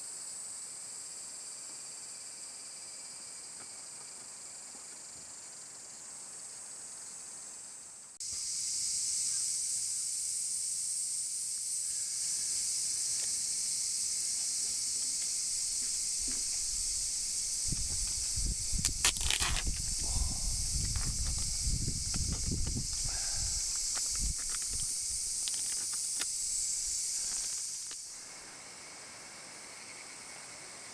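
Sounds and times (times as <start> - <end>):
high-pitched outdoor hiss: 0.0 - 30.9
rustling: 17.8 - 20.0
scuffing steps on ground: 17.9 - 19.9.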